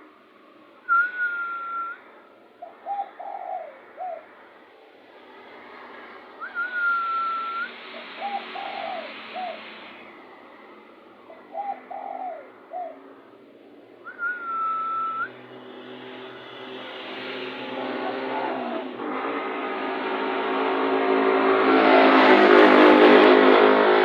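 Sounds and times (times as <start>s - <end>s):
drawn-out whistled note: 0.9s - 2.2s, 6.3s - 10.3s, 14.0s - 20.5s
dove cooing: 2.6s - 4.5s, 6.4s - 9.9s, 11.2s - 13.4s, 17.8s - 18.9s
steady hiss: 7.2s - 11.0s.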